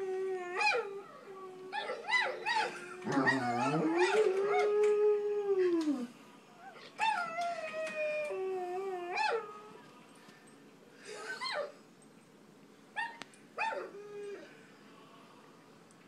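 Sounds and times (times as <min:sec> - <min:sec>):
dog whining and howling: 0:00.0 - 0:09.8, 0:13.0 - 0:14.6.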